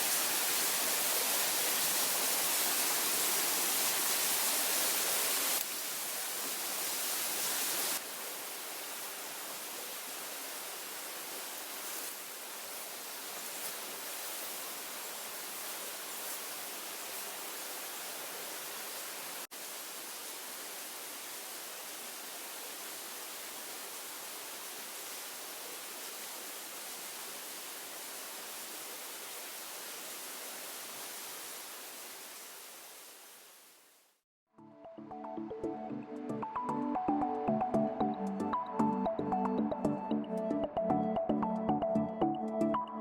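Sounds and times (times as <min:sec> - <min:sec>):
steady hissing noise: 0:00.0 - 0:34.2.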